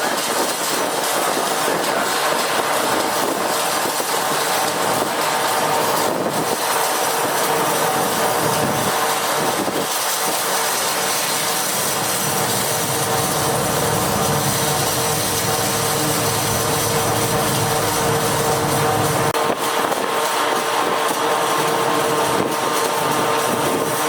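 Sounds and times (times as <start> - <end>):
machinery humming: 1.2 - 19.6.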